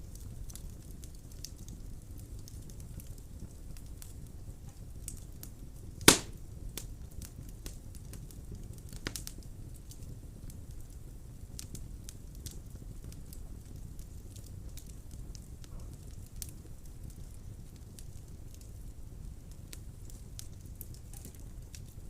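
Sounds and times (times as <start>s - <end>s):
fire crackling: 0.0s - 22.0s
wood fire burning: 0.0s - 22.0s
loud sharp pop: 6.1s - 6.4s.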